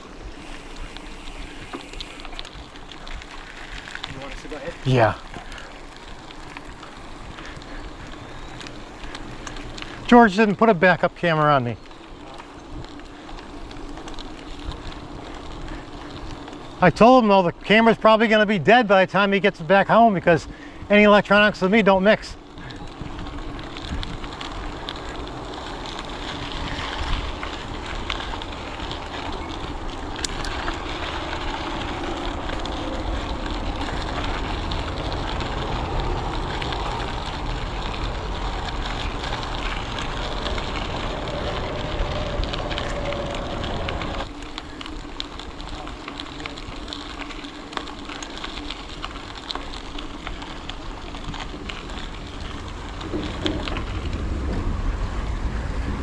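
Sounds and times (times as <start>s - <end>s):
bicycle tyres hissing on trail: 0.0s - 56.0s
wind rushing over microphone: 22.8s - 44.6s, 51.8s - 56.0s.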